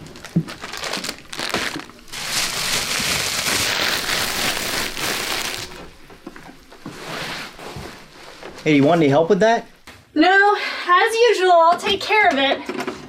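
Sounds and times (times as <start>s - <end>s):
plastic trash bag rustling: 0.0s - 9.9s.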